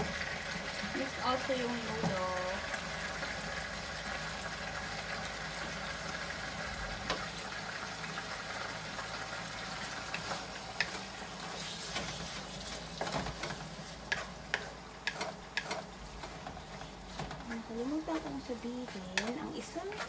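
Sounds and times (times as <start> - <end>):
meat frying in a wok: 0.0 - 20.0
water boiling in a pot: 0.0 - 20.0
wooden spatula scraping a wok: 9.7 - 20.0.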